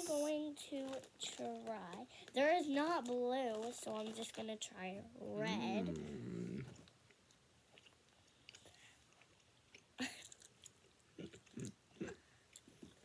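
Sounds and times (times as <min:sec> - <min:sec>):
chewing gummy candy: 0:00.6 - 0:02.4, 0:03.0 - 0:04.6, 0:05.6 - 0:13.0.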